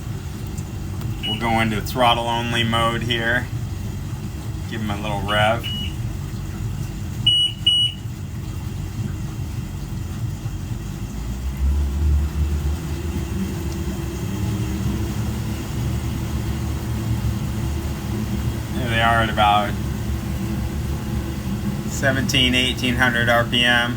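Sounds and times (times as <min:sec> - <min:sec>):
outboard engines rumbling: 0:00.0 - 0:23.9
short electronic beeps: 0:05.6 - 0:06.0, 0:07.3 - 0:08.0.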